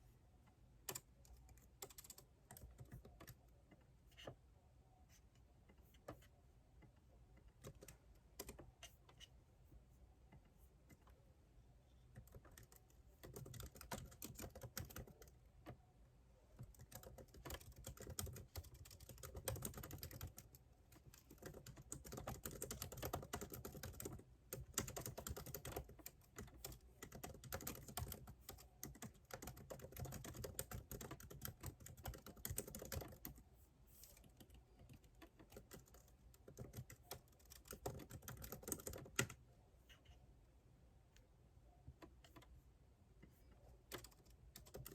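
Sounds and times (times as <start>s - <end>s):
typing on computer keyboard: 0.8s - 4.3s, 7.4s - 9.3s, 12.1s - 15.8s, 16.6s - 33.4s, 34.1s - 39.4s, 43.9s - 44.9s.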